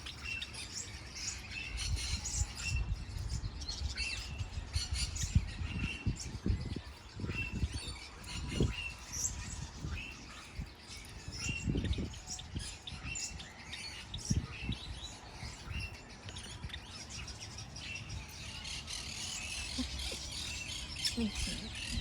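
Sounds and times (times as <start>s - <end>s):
birds chirping and twittering: 0.0s - 22.0s.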